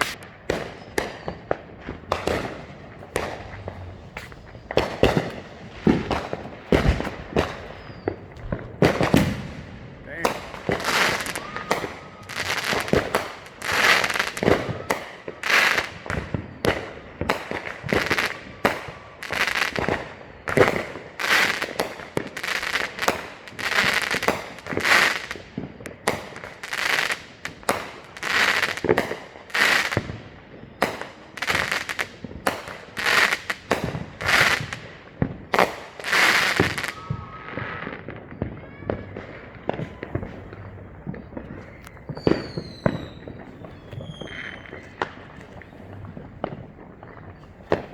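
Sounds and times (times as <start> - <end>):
fireworks bangs and crackling: 0.0 - 47.9.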